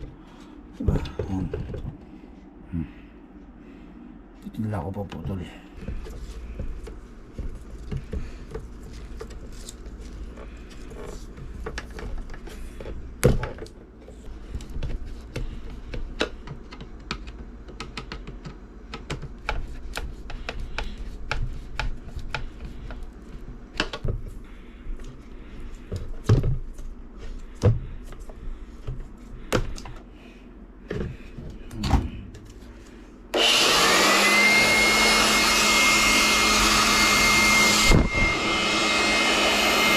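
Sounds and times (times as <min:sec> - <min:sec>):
blower motor whining: 0:33.3 - 0:39.9.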